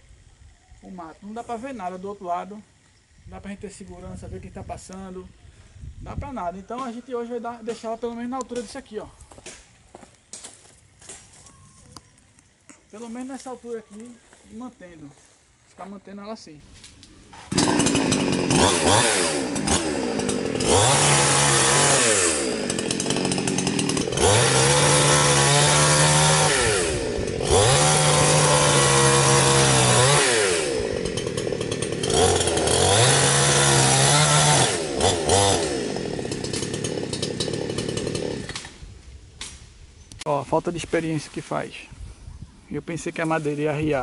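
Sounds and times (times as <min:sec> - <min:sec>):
chainsaw revving: 0:17.3 - 0:38.9.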